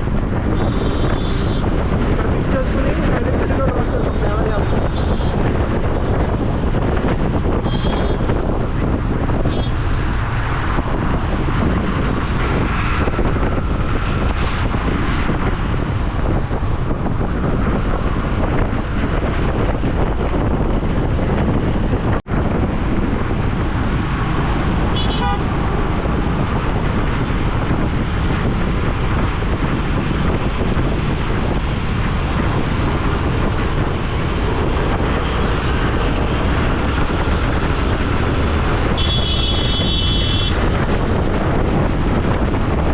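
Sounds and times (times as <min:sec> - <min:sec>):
city traffic noise: 0:00.0 - 0:42.9
wind buffeting microphone: 0:00.0 - 0:42.9
vehicle horn toots: 0:07.6 - 0:08.2, 0:24.9 - 0:25.5, 0:38.9 - 0:40.6.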